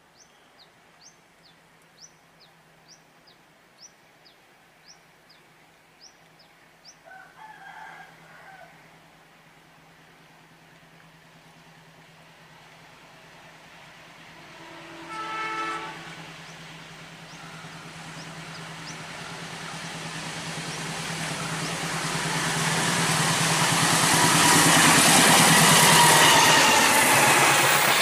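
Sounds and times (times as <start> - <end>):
train engine and wheel noise: 0.0 - 28.0
locomotive horn blast: 14.3 - 16.5, 24.1 - 27.9.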